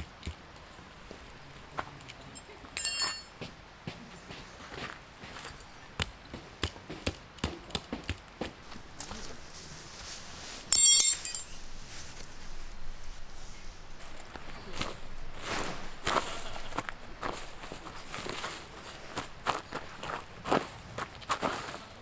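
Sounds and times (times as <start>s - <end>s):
sharp metallic clink: 2.4s - 3.4s, 10.7s - 11.6s.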